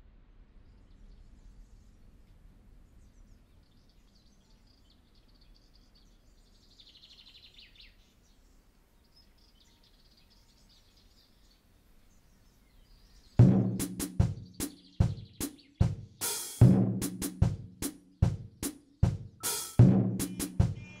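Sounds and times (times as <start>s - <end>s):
low background hiss: 0.0s - 13.8s
birds chirping: 0.6s - 21.0s.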